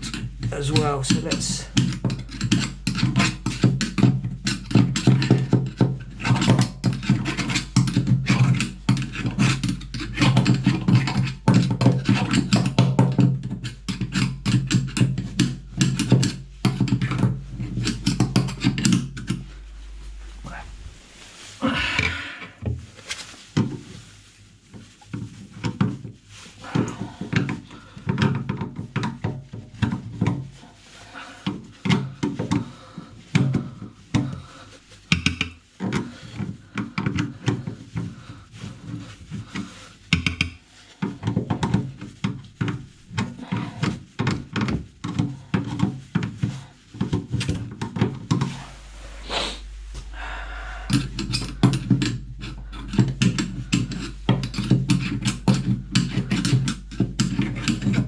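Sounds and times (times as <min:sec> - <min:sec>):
screwdriver scraping plastic: 0:00.0 - 0:19.5, 0:50.9 - 0:58.0
low hum: 0:15.5 - 0:23.3, 0:48.4 - 0:58.0.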